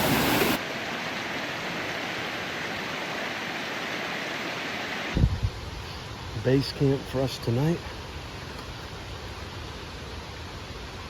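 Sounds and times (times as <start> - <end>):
stream water rushing: 0.0 - 5.2.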